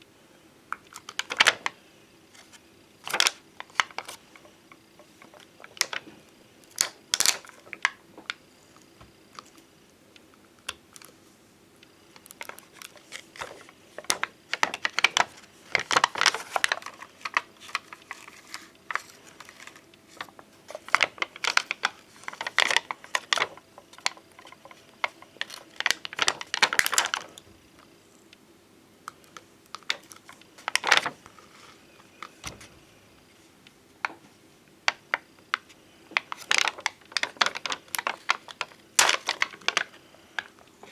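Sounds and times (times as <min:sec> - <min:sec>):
tapping and clicking on plastic stickers: 0:12.1 - 0:27.4.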